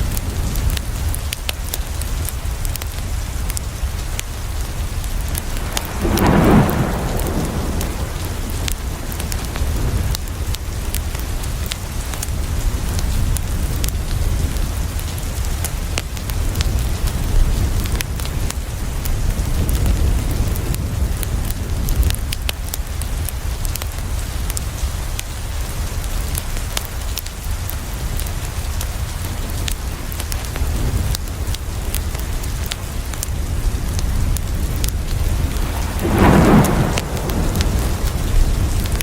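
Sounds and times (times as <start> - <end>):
rain on a window: 0.0 - 39.0
wood fire crackling: 0.0 - 39.0
thunder roll: 4.8 - 11.7, 33.6 - 39.0.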